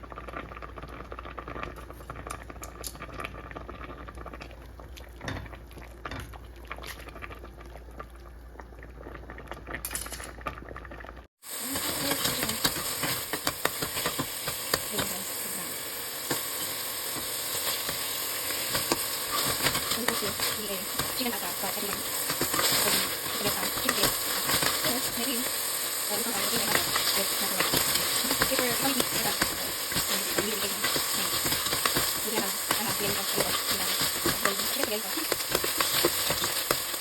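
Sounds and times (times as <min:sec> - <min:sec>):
food sizzling in a pan: 0:11.3 - 0:37.0.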